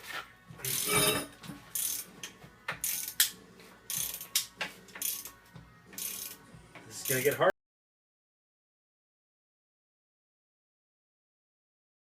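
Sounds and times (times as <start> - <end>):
socket ratchet clicking: 1.8 - 2.1, 2.8 - 3.3, 3.9 - 5.4, 6.0 - 6.4.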